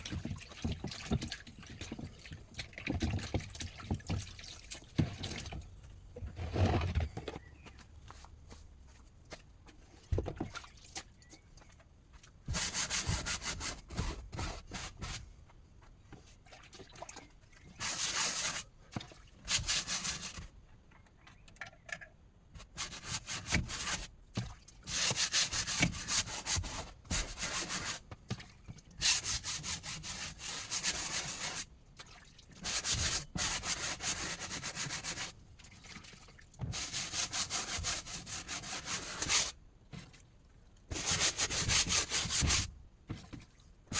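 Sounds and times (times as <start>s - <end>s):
rough scraping on wood: 6.2s - 7.3s.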